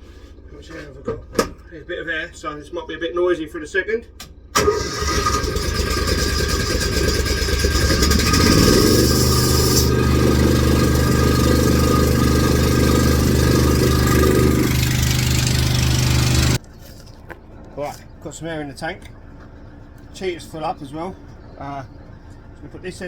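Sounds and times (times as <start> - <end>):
air compressor pulsing: 4.6 - 16.6
air hissing: 8.3 - 16.6.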